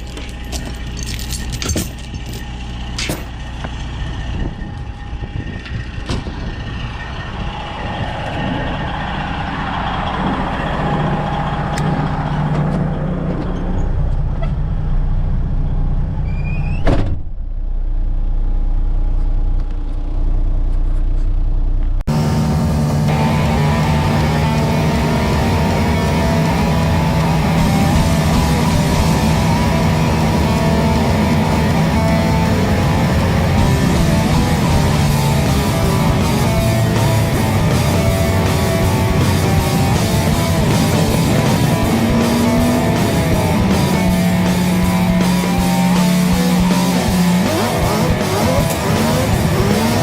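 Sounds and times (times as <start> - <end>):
truck diesel engine pulling away: 0.0 - 16.8, 21.4 - 50.0
rock music: 23.0 - 50.0.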